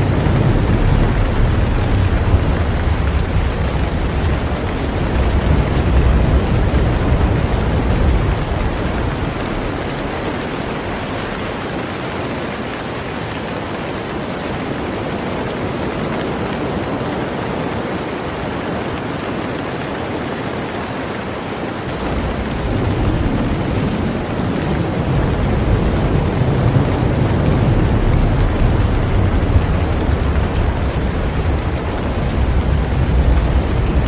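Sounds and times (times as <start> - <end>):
deep low rumble: 0.0 - 11.2, 21.9 - 34.0
heavy rain on a boat: 0.0 - 34.0.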